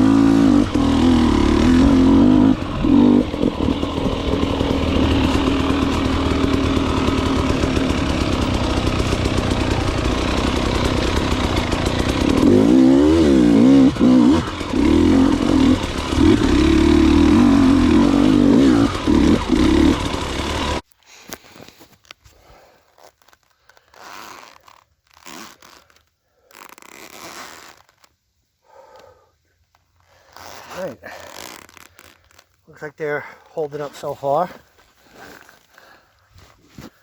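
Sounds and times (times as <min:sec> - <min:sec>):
dirt bike engine revving: 0:00.0 - 0:20.8.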